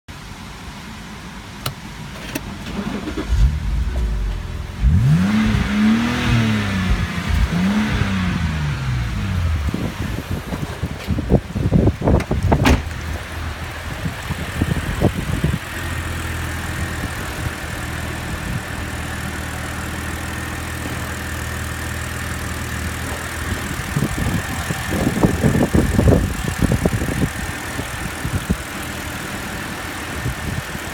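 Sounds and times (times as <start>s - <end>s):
car engine idling: 0.1s - 30.9s
knocks and thumps: 12.1s - 13.2s.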